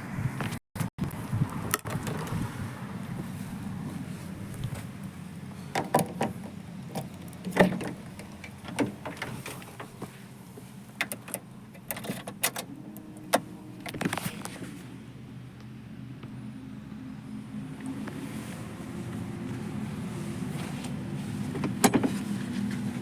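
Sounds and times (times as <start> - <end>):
van engine idling: 2.1 - 23.0
clicks and knocks of latches: 11.0 - 12.7.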